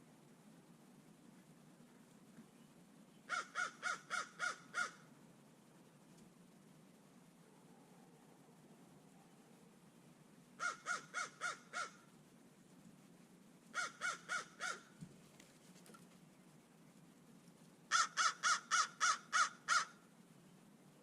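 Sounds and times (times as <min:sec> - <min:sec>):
crow cawing: 0:03.3 - 0:05.0, 0:10.6 - 0:12.0, 0:13.7 - 0:14.9, 0:17.9 - 0:20.0.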